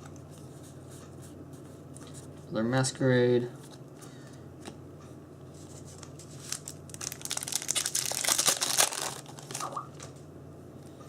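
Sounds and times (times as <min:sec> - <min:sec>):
foil wrapper tearing and crinkling: 0:06.4 - 0:10.1.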